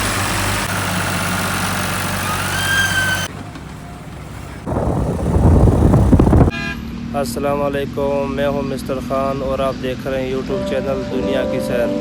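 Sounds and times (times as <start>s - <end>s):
heavy diesel machinery running: 0.0s - 6.5s
rough engine rumble: 0.0s - 6.5s
rising whine: 4.7s - 6.5s.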